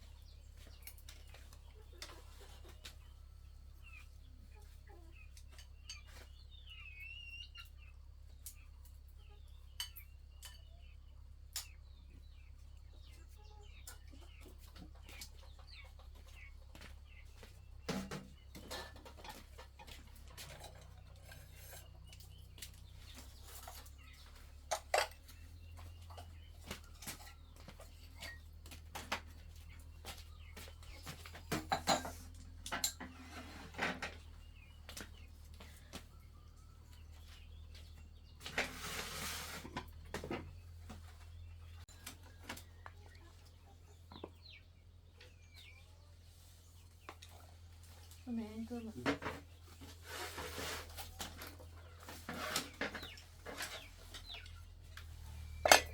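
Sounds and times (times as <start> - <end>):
chickens clucking: 0.0 - 55.9
dishes and utensils clinking: 31.5 - 34.2, 55.6 - 55.9.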